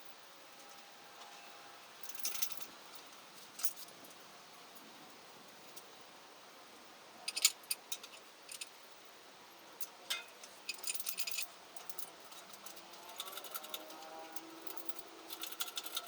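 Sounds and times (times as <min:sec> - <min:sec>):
small metal objects clinking: 0:10.1 - 0:16.0.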